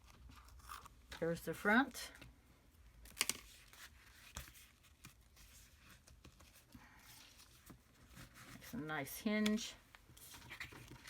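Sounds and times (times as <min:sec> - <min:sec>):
paper and card rustling: 0:03.0 - 0:11.0.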